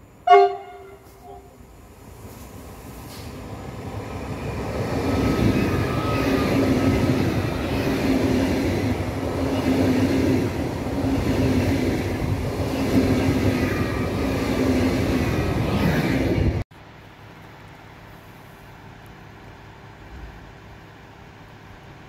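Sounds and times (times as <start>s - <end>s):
train wheels rumbling on rail: 0.3s - 16.7s.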